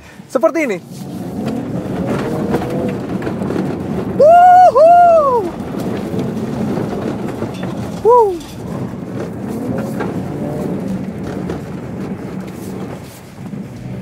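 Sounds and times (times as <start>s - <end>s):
car engine working hard: 0.0s - 14.0s
tyres scrabbling on dirt: 0.3s - 14.0s
loud falling tone: 4.2s - 5.5s.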